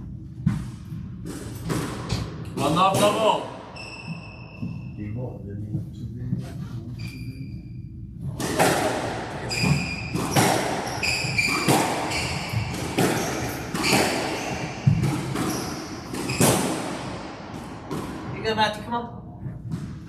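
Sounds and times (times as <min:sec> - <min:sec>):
squash ball hitting rackets and walls: 0:00.1 - 0:04.9, 0:08.2 - 0:18.7, 0:19.5 - 0:20.0
shoes squeaking on court floor: 0:03.7 - 0:05.1, 0:07.0 - 0:07.8, 0:09.4 - 0:16.8.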